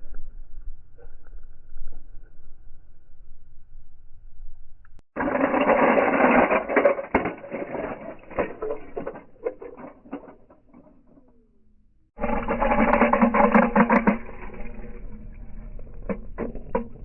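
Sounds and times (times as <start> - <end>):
metal and plastic rattle: 5.2 - 11.4, 12.2 - 17.0
toy cars crashing: 5.2 - 11.4, 12.2 - 17.0.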